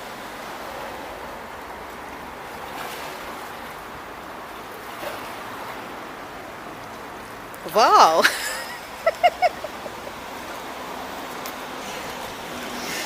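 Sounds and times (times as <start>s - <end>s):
steady rushing noise: 8.8s - 13.0s.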